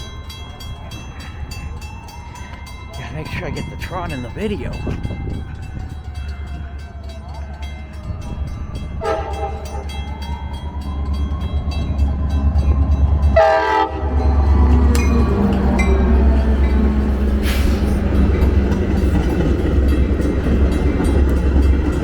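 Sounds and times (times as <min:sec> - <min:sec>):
train rumble: 0:00.0 - 0:22.0
train horn: 0:09.0 - 0:10.2, 0:13.4 - 0:16.5.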